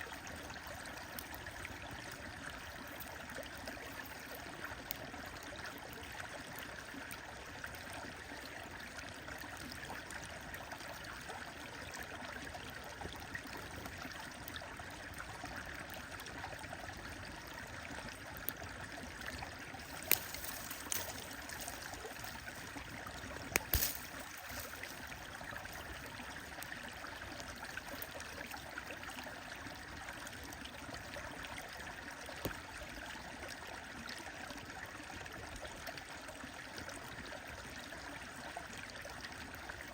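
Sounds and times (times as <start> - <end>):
stream flowing: 0.0 - 39.9
wood fire crackling: 1.0 - 5.1, 19.3 - 28.6.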